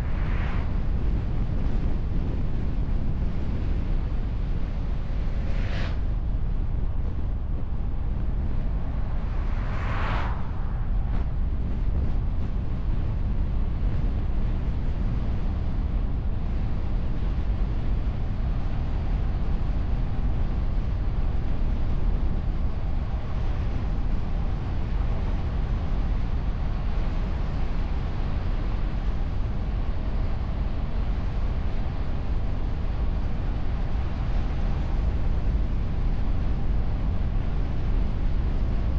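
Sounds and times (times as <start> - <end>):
road and wind rumble: 0.0 - 38.9
brief whooshes: 9.4 - 11.3.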